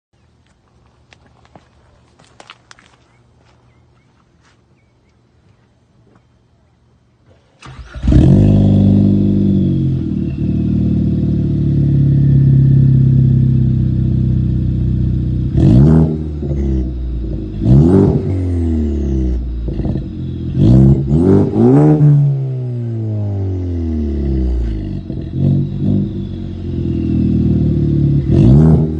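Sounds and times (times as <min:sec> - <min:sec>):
car engine starting and idling: 0:07.3 - 0:28.9
engine revving in throttle blips: 0:07.6 - 0:28.9.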